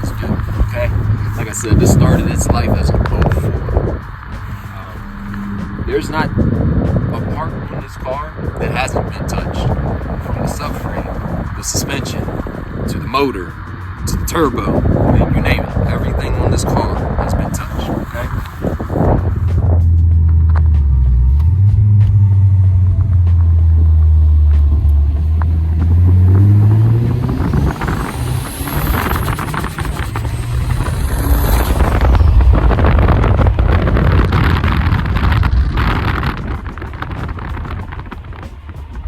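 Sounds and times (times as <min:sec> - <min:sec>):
car engine accelerating: 0:00.0 - 0:39.0
loud rushing noise: 0:00.0 - 0:39.0
turbo whistle: 0:04.6 - 0:06.4.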